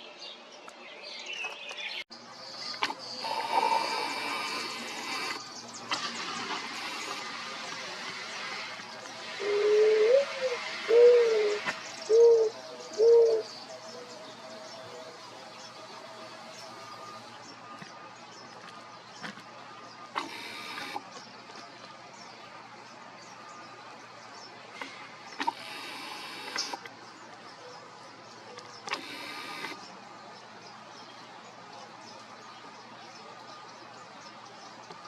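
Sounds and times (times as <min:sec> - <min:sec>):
bird hooting coos: 0:03.2 - 0:05.4, 0:09.3 - 0:14.1.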